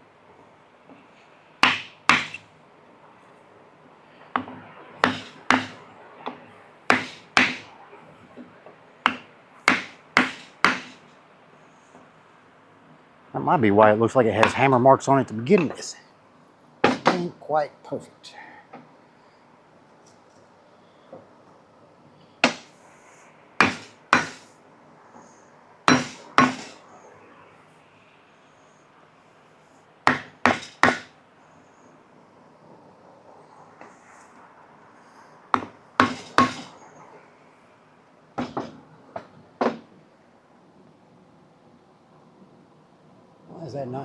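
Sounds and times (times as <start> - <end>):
hammer blows on wood and metal: 1.6 - 2.5, 4.3 - 7.7, 9.0 - 11.2, 22.4 - 22.8, 23.6 - 24.6, 25.9 - 26.8, 30.1 - 31.2, 35.6 - 36.8.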